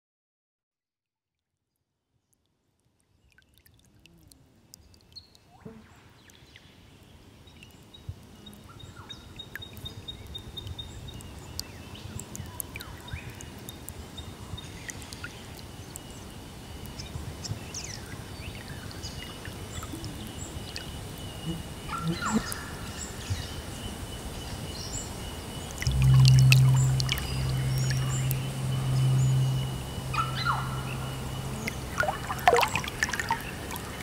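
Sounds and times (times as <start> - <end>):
low steady rush: 24.5 - 34.0
birds calling and chirping: 24.6 - 34.0
high ticking notes: 25.8 - 34.0.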